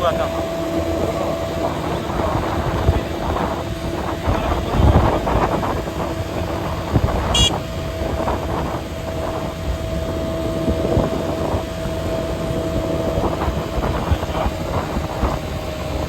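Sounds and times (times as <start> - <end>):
road and engine noise: 0.0 - 16.0
wind on microphone: 0.0 - 16.0
brief high tone: 7.3 - 7.6.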